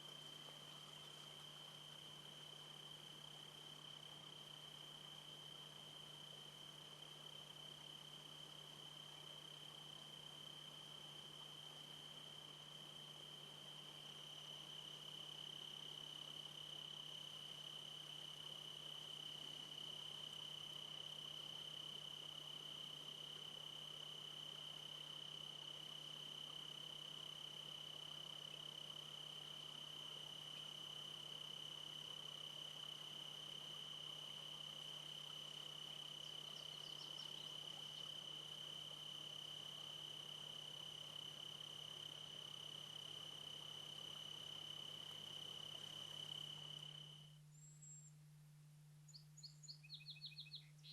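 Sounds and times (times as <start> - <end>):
crickets trilling: 0.0 - 48.1, 49.1 - 50.9.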